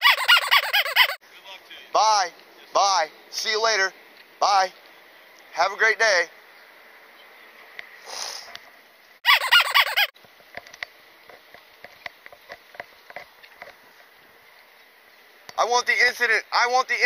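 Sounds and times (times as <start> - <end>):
bird call with harsh notes: 0.0 - 1.2, 9.2 - 10.1.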